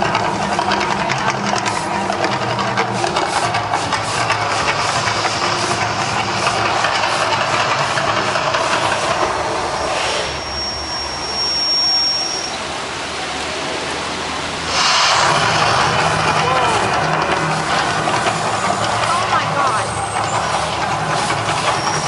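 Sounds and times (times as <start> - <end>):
thin high whistle: 9.8 - 12.6
roar of fire effects: 14.6 - 19.5.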